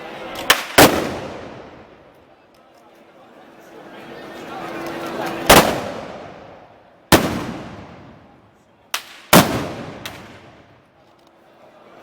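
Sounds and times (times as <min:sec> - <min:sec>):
gunshots with long echo: 0:05.5 - 0:06.4, 0:07.1 - 0:08.3, 0:09.3 - 0:10.6.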